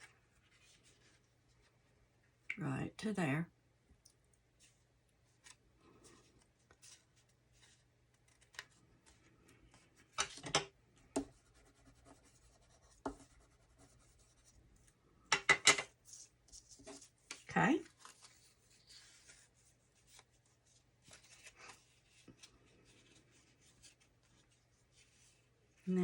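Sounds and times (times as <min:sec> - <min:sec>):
paper rustling: 0:04.6 - 0:10.4, 0:16.0 - 0:25.9.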